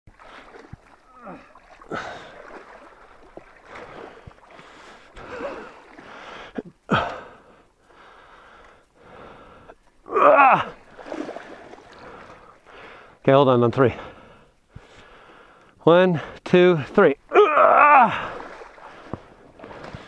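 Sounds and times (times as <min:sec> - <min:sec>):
water splashing and sloshing: 0:00.1 - 0:20.0
heavy breathing: 0:03.9 - 0:09.8, 0:13.9 - 0:16.4.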